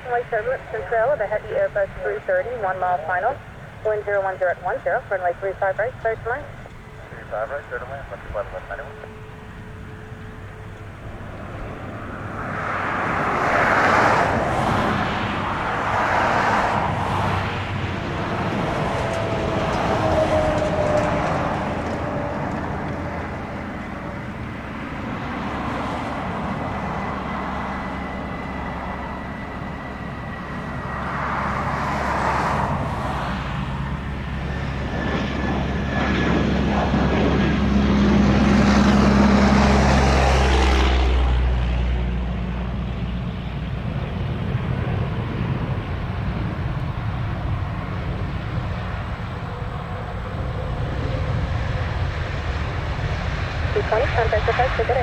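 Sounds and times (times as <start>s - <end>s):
faint whining tones: 0.0s - 13.2s
jet airliner engines passing: 0.0s - 55.0s.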